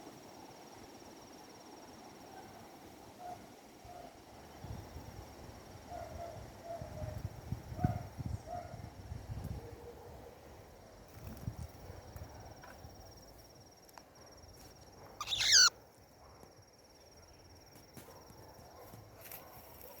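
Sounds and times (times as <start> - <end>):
faint wind noise: 3.2 - 13.2
high insect trill: 14.4 - 15.8
cockatiel warbling call: 15.2 - 15.7.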